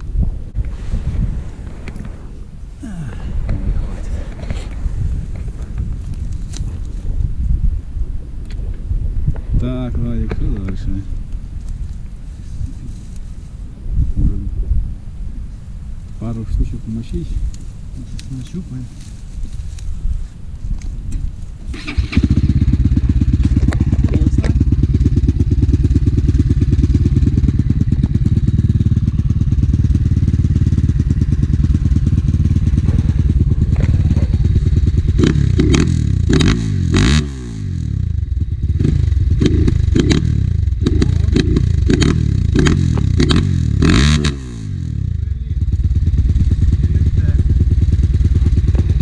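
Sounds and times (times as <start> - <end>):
motorcycle engine revving: 21.6 - 49.0
clatter: 45.7 - 49.0.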